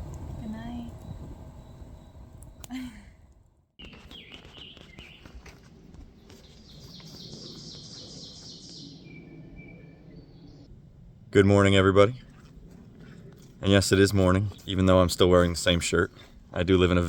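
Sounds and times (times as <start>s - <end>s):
low outdoor background: 0.0s - 17.0s
bird trill: 3.8s - 5.4s, 6.3s - 10.7s
birds chirping: 3.8s - 10.7s, 13.0s - 17.0s.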